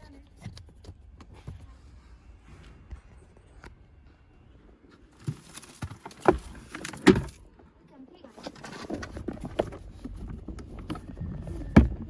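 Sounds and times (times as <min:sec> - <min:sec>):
rustling: 0:05.0 - 0:07.5, 0:08.2 - 0:12.0.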